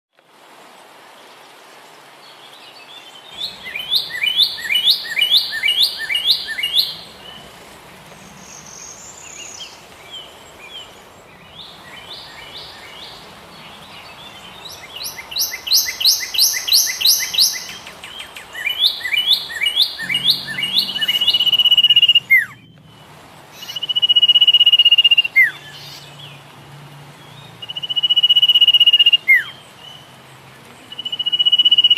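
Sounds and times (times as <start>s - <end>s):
bird song with sharp repeated notes: 2.9s - 26.4s
long bird whistles: 3.4s - 7.6s, 14.6s - 26.0s, 27.6s - 29.5s.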